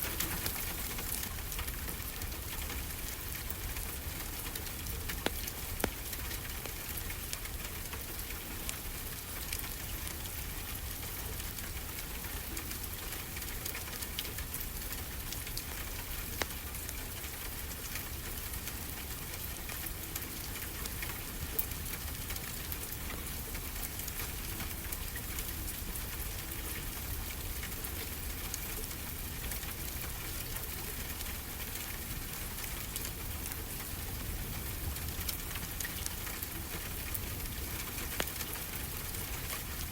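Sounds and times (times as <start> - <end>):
wood fire crackling: 0.0 - 8.1, 30.5 - 39.9.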